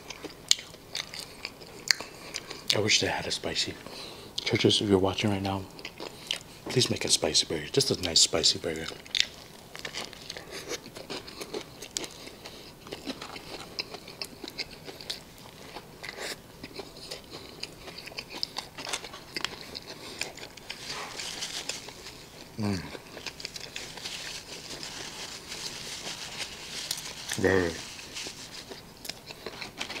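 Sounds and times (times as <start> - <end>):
crunchy chewing of burger: 0.0 - 2.8, 5.5 - 6.8, 8.0 - 30.0
person humming low: 22.6 - 22.9.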